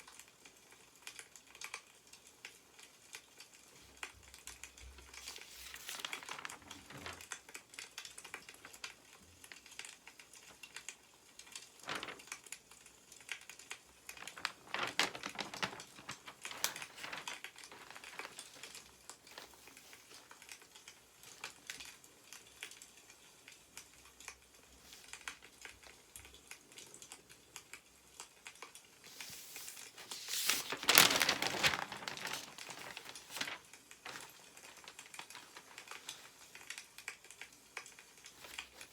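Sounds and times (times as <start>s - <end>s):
wood fire crackling: 0.6s - 38.9s
newspaper pages rustling: 4.8s - 9.0s, 10.4s - 12.8s, 13.5s - 21.8s, 29.0s - 38.9s.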